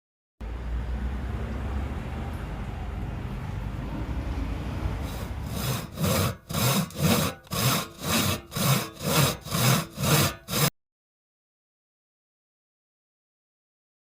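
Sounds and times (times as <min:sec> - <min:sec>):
hand saw sawing: 0:05.0 - 0:10.8.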